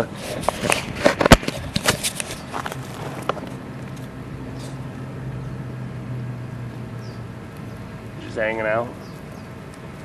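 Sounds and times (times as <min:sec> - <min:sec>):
engine humming: 0:00.0 - 0:10.0
sharp clicks and scuffs: 0:00.2 - 0:05.0.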